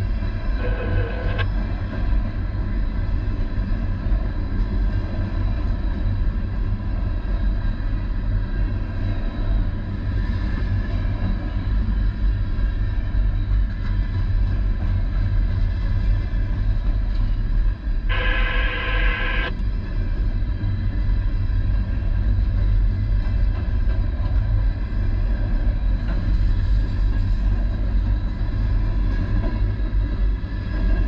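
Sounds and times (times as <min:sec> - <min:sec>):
faint steady whine: 0:00.0 - 0:01.7, 0:17.2 - 0:21.0.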